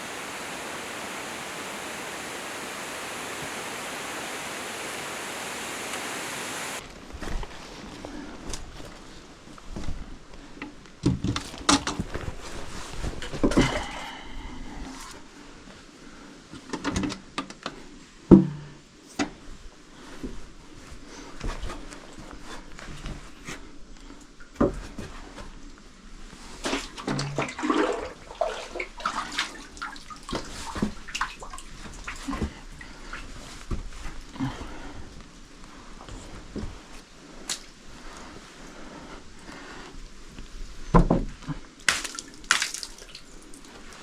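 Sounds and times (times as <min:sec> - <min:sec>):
water splashing and sloshing: 0:26.7 - 0:33.3.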